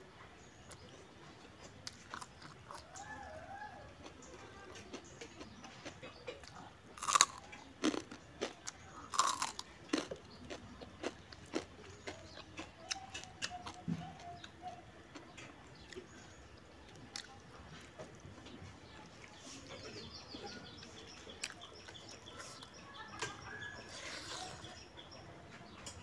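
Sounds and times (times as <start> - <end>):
crunchy chewing: 0.6 - 25.0
biting crisp fried food: 1.6 - 18.0.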